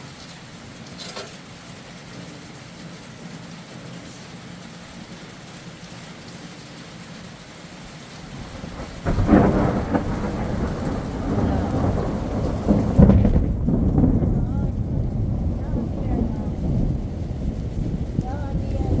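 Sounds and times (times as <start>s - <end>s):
steady rain: 0.0s - 19.0s
thunder rumbling: 8.1s - 19.0s.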